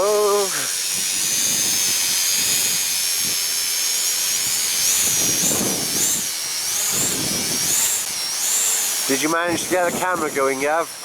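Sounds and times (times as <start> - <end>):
drone propellers whining: 0.0 - 11.0
wind hiss on microphone: 0.0 - 11.0.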